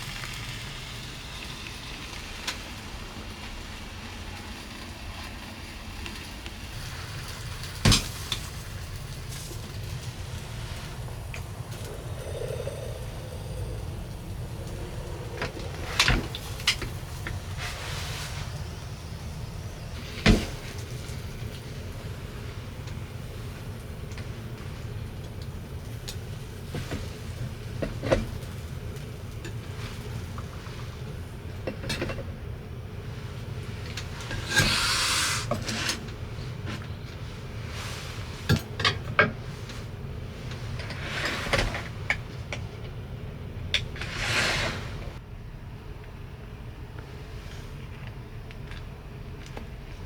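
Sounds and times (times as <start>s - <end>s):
hissing burst: 7.8s - 22.6s
low hum: 8.4s - 22.5s.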